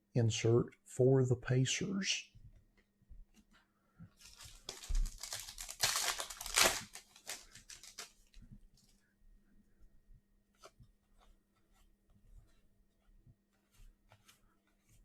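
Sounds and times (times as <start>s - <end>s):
plastic wrapper tearing and crinkling: 4.2s - 8.4s.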